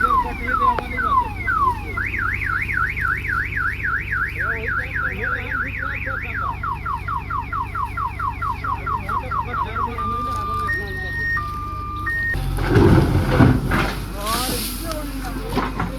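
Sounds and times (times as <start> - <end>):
electronic siren alarm: 0.0 - 12.4
diesel engine running: 0.0 - 15.9.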